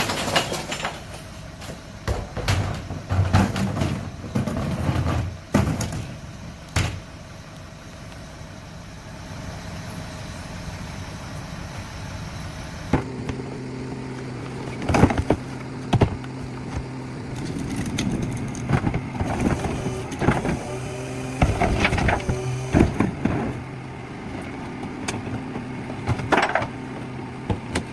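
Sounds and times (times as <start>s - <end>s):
garbage truck hydraulic hum: 10.3s - 27.9s.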